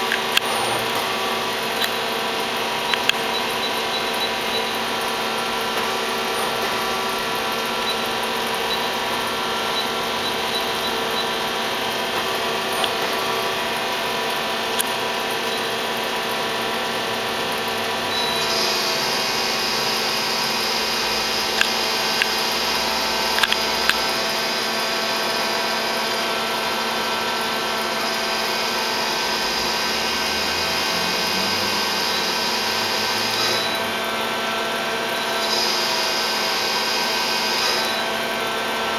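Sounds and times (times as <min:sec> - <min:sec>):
higher whine: 0:00.0 - 0:36.8
machine whine: 0:00.0 - 0:38.9
sharp clicks: 0:02.9 - 0:03.6, 0:21.5 - 0:22.5, 0:23.3 - 0:24.1.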